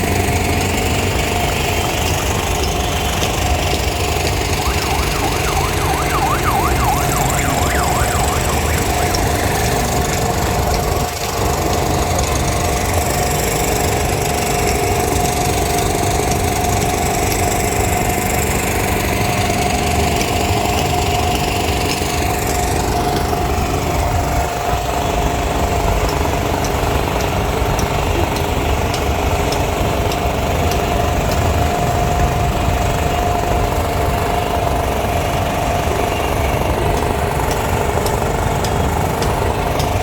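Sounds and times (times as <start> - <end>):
engine rumble: 0.0 - 40.0
mechanical drone: 0.0 - 40.0
fast warbling tone: 4.4 - 10.1.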